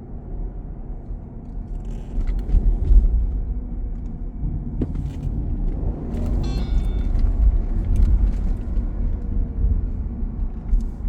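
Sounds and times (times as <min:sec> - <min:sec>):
passing cars rumbling: 0:04.3 - 0:11.0.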